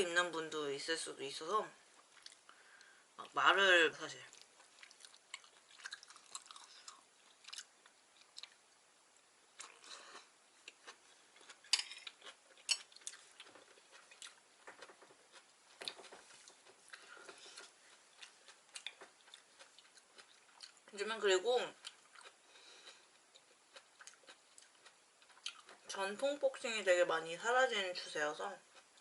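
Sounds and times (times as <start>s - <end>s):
person chewing food: 1.9s - 3.3s, 4.3s - 8.9s, 9.5s - 20.9s, 21.8s - 25.9s, 28.7s - 29.0s.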